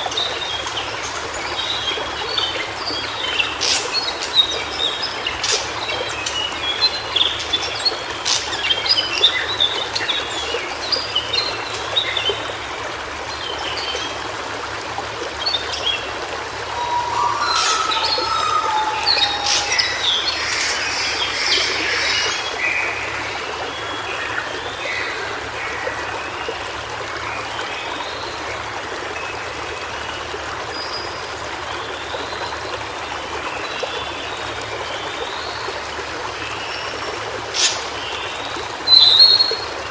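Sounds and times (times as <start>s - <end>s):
stream flowing: 0.0s - 39.9s
lower whistled phrase: 16.7s - 22.4s
bird twittering song: 16.7s - 25.1s, 38.9s - 39.6s.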